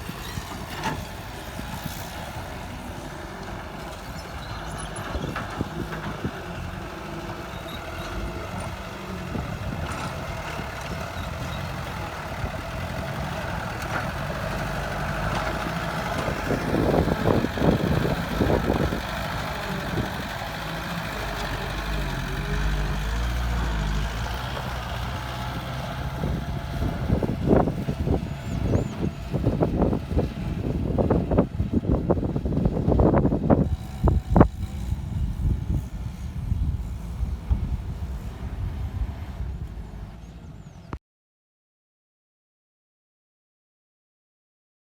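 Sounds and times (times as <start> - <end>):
heavy diesel machinery engine: 0.0 - 41.0.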